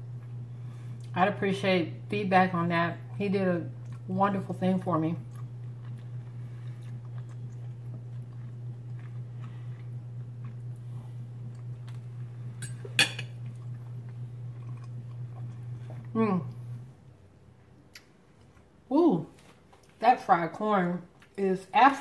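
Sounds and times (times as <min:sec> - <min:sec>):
steady low hum: 0:00.0 - 0:22.0
person chewing: 0:05.2 - 0:16.6.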